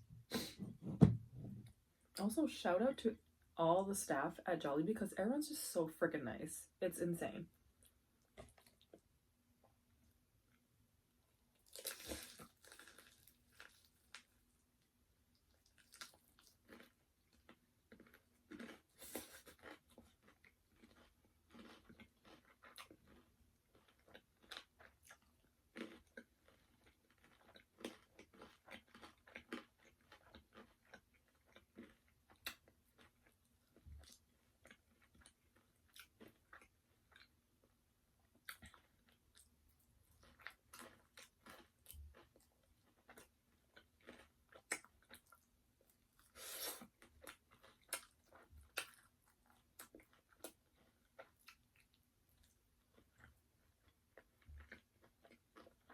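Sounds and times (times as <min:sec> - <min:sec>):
soft chewing: 0:07.7 - 0:10.7, 0:11.6 - 0:55.9
crunching fried chicken: 0:11.6 - 0:14.5, 0:15.4 - 0:37.3.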